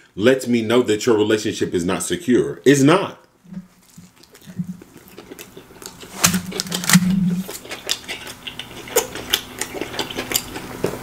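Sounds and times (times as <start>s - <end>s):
chewing with wet mouth clicks: 3.8s - 11.0s.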